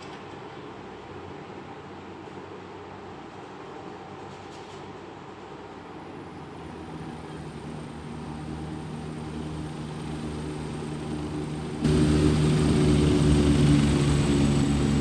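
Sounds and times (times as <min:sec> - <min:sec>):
aeroplane engine droning: 0:05.3 - 0:15.0.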